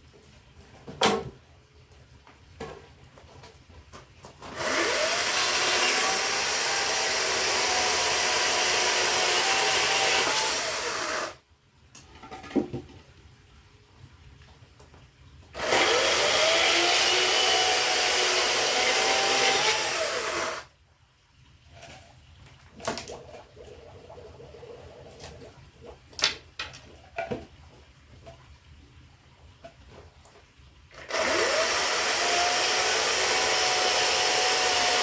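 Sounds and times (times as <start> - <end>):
power saw cutting firewood: 4.4 - 11.4, 15.6 - 20.7, 30.9 - 35.0.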